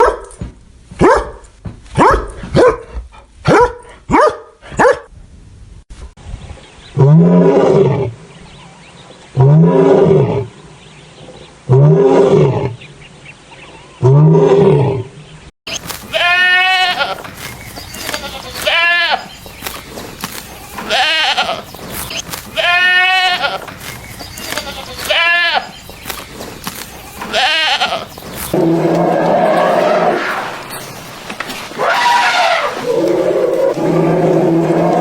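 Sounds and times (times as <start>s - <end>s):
animal calls: 15.7s - 35.0s
goat bleating: 15.8s - 19.5s, 20.7s - 25.9s, 27.2s - 31.0s.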